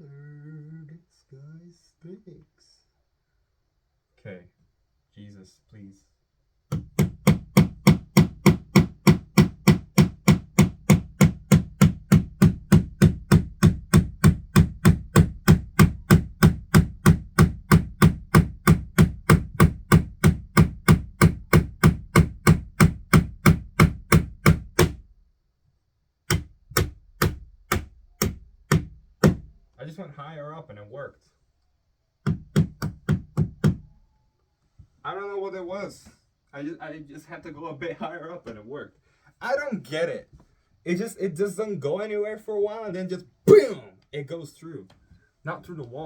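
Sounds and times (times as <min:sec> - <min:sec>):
hammer driving a nail: 0:06.7 - 0:25.1, 0:26.3 - 0:29.5, 0:32.2 - 0:34.0.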